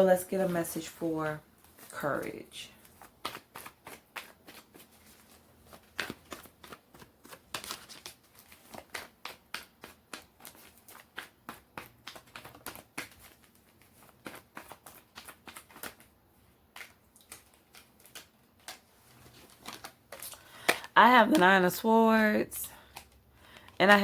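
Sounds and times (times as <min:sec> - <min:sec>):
cards being shuffled: 0:01.6 - 0:21.6, 0:22.7 - 0:24.0.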